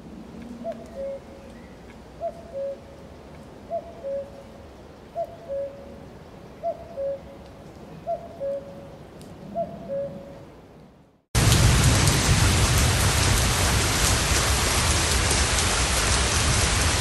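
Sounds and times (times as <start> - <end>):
steady rain hiss: 0.0 - 6.6, 11.4 - 17.0
bird hooting two-note calls: 0.6 - 2.9, 3.7 - 4.4, 5.2 - 6.0, 6.6 - 7.3, 8.1 - 8.9, 9.5 - 10.4.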